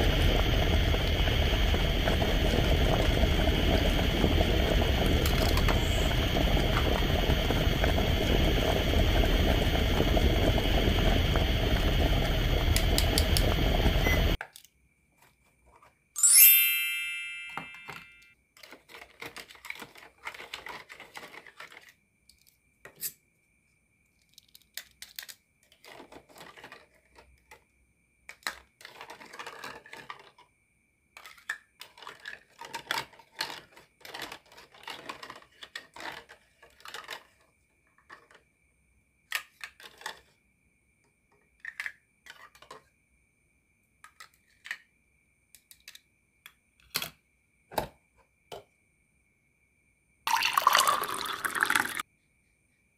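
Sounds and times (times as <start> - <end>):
electronic bubbling hiss: 0.0 - 14.4
chime ringing: 16.2 - 18.3
plastic toys clattering: 17.9 - 23.1, 24.1 - 30.6, 31.2 - 38.4, 39.2 - 40.4, 41.3 - 42.9, 44.0 - 44.9, 45.6 - 47.2.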